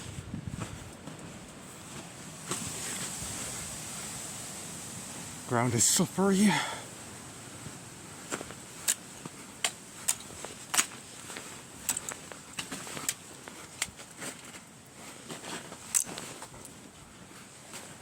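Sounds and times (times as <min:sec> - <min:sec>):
footsteps on crusted snow: 0:00.0 - 0:04.2.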